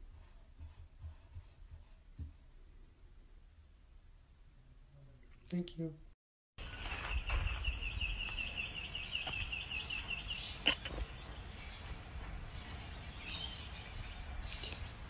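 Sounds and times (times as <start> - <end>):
small bird chirping: 6.7 - 12.0.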